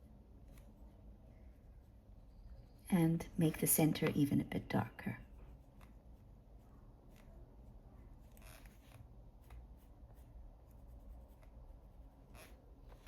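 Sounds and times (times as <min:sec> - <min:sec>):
pencil scratching on paper: 0:05.2 - 0:13.0.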